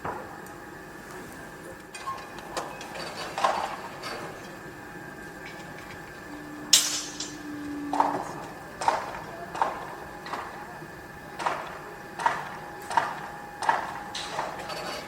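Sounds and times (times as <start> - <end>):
machine whine: 0.0 - 15.0.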